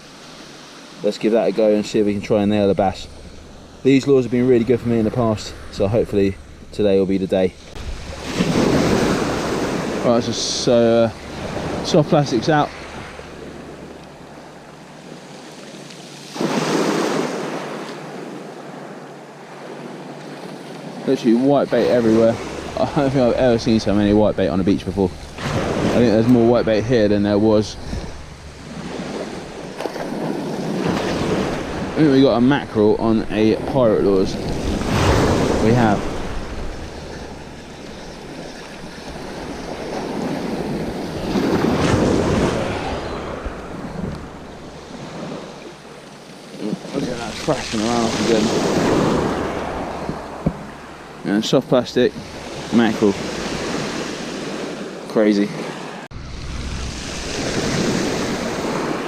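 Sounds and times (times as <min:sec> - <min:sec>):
sea waves washing on beach: 0:00.0 - 0:59.0
wind on microphone: 0:02.2 - 0:15.3, 0:21.6 - 0:46.0, 0:55.6 - 0:59.0.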